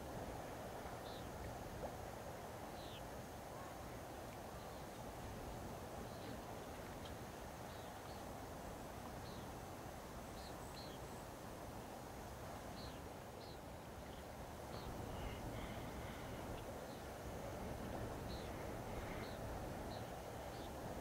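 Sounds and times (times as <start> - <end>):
calm water ambience: 0.0 - 21.0
birds chirping: 12.8 - 17.0, 18.3 - 20.8.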